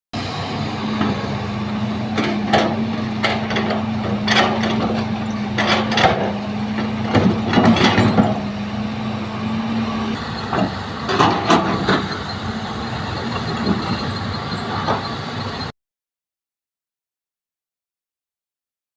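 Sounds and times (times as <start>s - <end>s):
diesel engine running: 0.2s - 15.7s
excavator bucket clanks and thuds: 2.1s - 8.5s, 10.4s - 12.4s.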